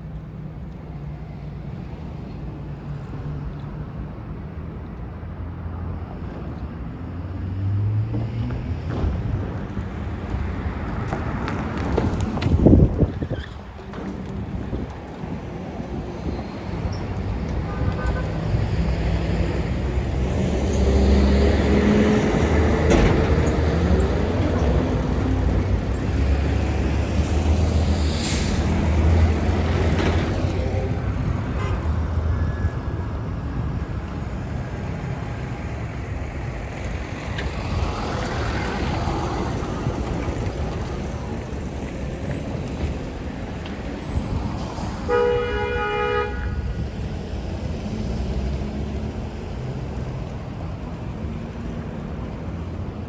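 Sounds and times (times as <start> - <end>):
road traffic passing: 0.0 - 53.0
heavy vehicle engine rumbling: 8.0 - 53.0
air brake hiss: 27.9 - 28.9
short horn toot: 45.1 - 46.6.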